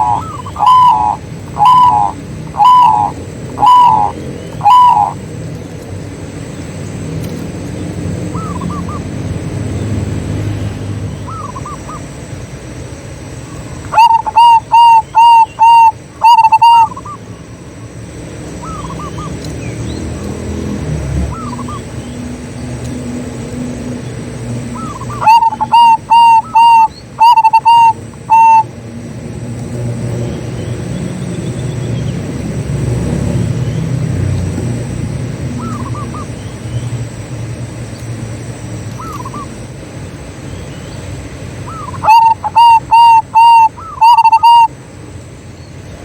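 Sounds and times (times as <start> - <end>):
dove cooing: 0.0 - 5.3, 8.3 - 9.1, 11.3 - 12.2, 13.7 - 17.2, 18.6 - 19.5, 21.2 - 22.3, 24.6 - 28.7, 35.5 - 36.4, 39.0 - 39.6, 41.6 - 44.7
faint bird calls: 0.0 - 5.8, 8.3 - 9.1, 11.1 - 12.3, 13.3 - 20.4, 21.2 - 22.6, 23.9 - 28.8, 35.5 - 37.1, 38.8 - 44.8.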